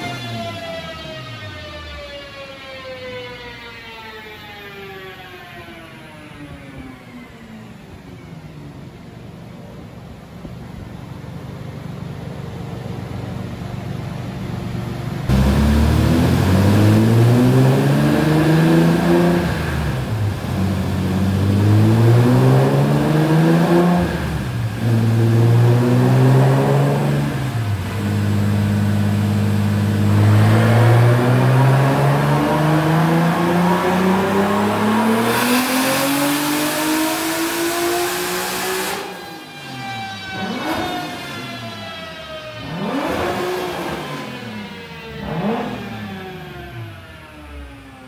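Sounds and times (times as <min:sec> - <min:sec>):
car engine revving on dyno: 0:00.0 - 0:01.8, 0:15.2 - 0:48.0.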